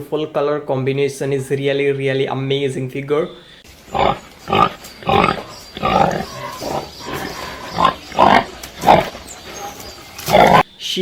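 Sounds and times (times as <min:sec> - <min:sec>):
pig grunting: 0:03.6 - 0:10.7.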